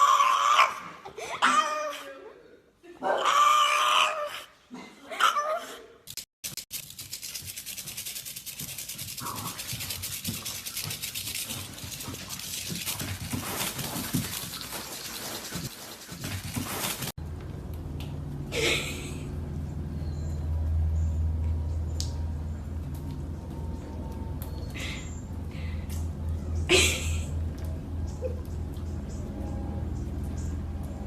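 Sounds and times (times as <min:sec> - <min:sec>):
low steady hum: 0:17.2 - 0:31.0.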